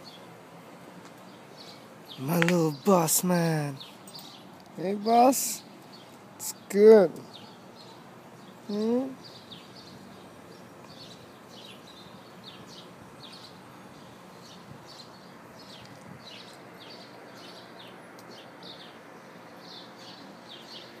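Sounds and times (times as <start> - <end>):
small birds chirping: 0.0 - 21.0
steady background hiss: 0.0 - 21.0.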